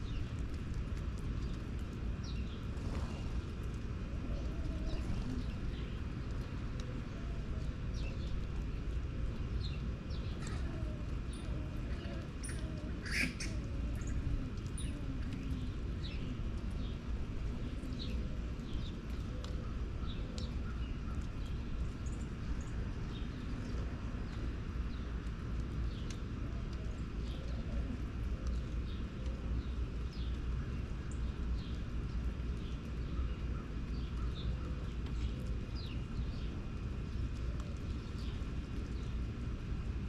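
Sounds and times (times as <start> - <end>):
steady low rumble: 0.0 - 40.0
birds chirping: 9.6 - 25.2.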